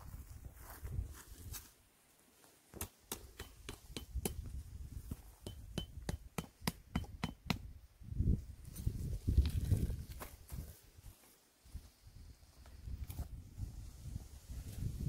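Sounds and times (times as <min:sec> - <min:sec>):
tent pegs hammered metallic taps: 0:02.7 - 0:07.7.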